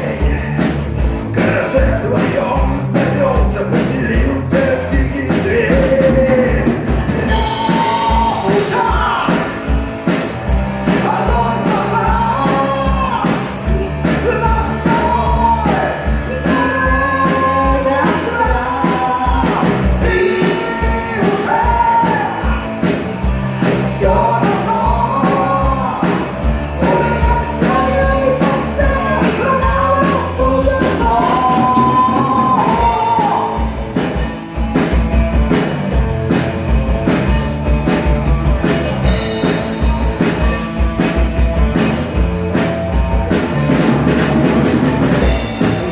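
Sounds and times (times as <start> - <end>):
person singing: 0.0 - 34.4
bass guitar: 0.0 - 45.9
drum beat: 0.0 - 45.9
electric guitars: 0.0 - 45.9.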